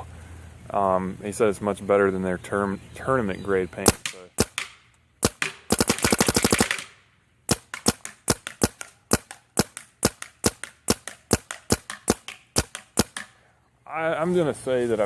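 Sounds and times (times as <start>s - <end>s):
paintball marker firing: 3.8s - 13.4s.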